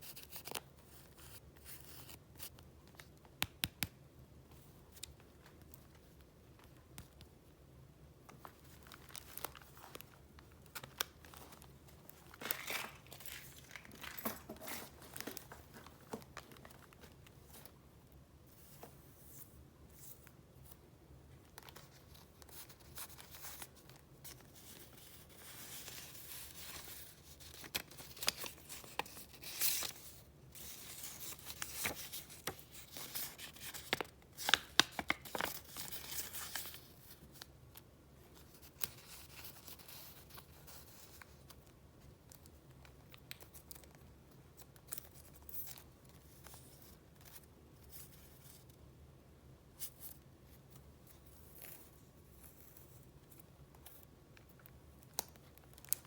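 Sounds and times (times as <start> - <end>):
paper rustling and crinkling: 8.3 - 17.8, 21.5 - 37.5
sharp paper crackles: 8.6 - 17.0.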